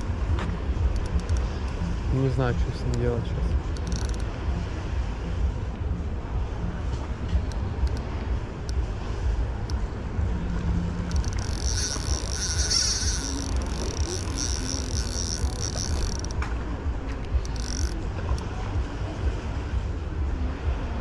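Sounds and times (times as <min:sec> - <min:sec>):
wind rumble on microphone: 0:00.0 - 0:21.0
fishing reel drag buzzing: 0:03.7 - 0:04.2, 0:10.9 - 0:16.4, 0:17.3 - 0:18.4.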